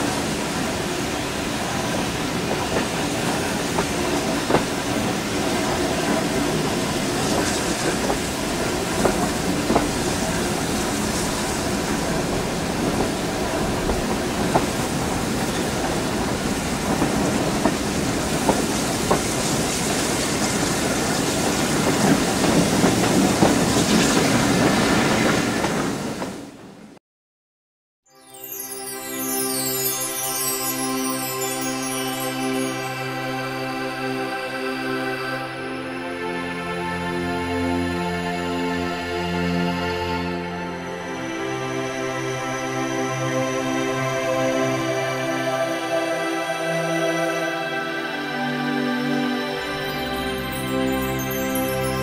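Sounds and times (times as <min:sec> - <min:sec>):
train rumble and rushing air: 0:00.0 - 0:27.0.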